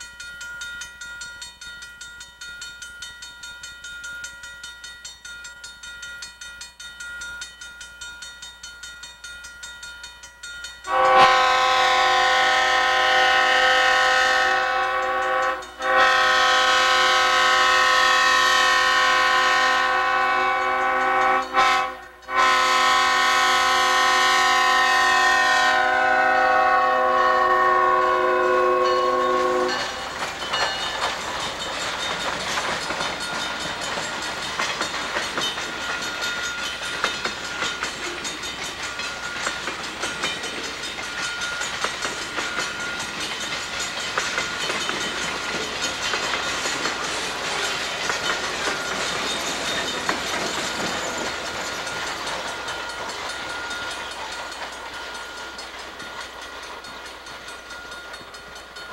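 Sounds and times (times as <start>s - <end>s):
train wheels clacking over rail joints: 0.0s - 58.9s
locomotive air horn: 10.9s - 30.1s.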